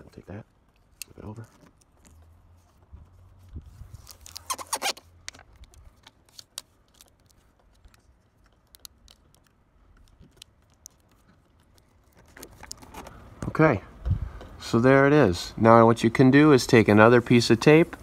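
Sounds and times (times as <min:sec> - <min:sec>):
foil tape crinkling: 0:03.4 - 0:13.2.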